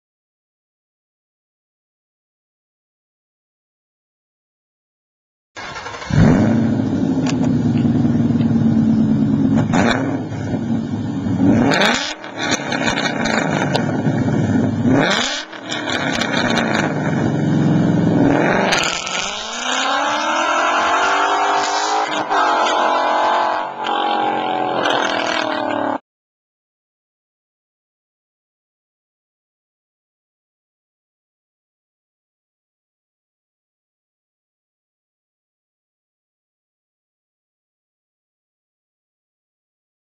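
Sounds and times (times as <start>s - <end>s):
car engine idling: 5.6s - 11.6s, 16.9s - 18.3s
car engine accelerating: 5.6s - 26.0s.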